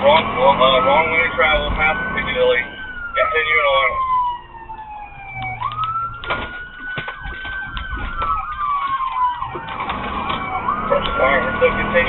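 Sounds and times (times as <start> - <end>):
police siren wailing and yelping: 0.0 - 12.0
sharp clicks and knocks: 4.7 - 11.2.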